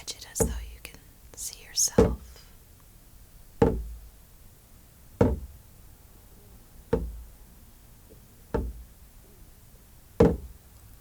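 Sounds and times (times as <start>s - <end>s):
sharp knocks: 0.3s - 0.7s, 1.9s - 2.3s, 3.6s - 4.0s, 5.2s - 5.5s, 7.0s - 7.3s, 8.6s - 8.9s, 10.2s - 10.5s.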